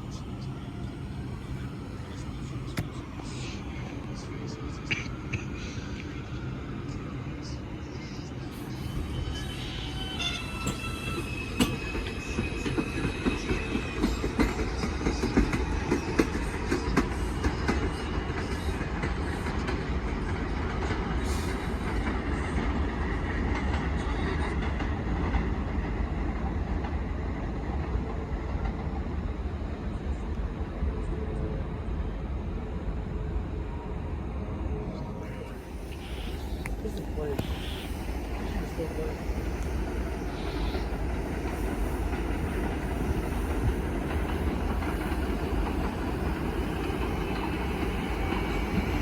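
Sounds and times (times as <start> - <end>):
subway train rumbling past: 0.0 - 49.0
high wheel squeal: 8.6 - 14.6.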